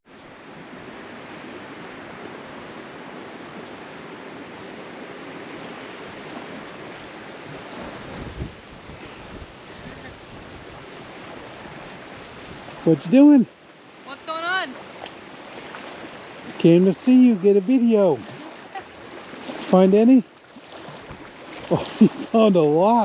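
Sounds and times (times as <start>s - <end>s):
wind buffeting microphone: 0.4s - 13.1s
gale-force wind rushing: 0.7s - 13.4s.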